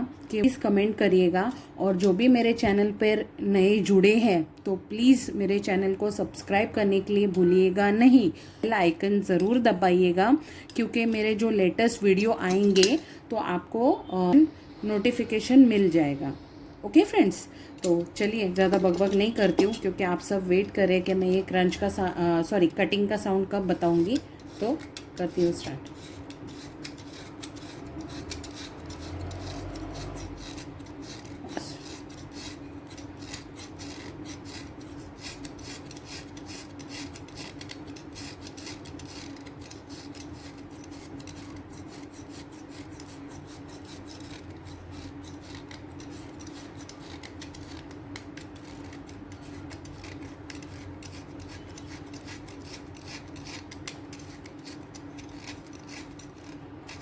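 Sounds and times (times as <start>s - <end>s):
blade scraping chalk sticks: 10.7s - 13.0s, 17.8s - 57.0s.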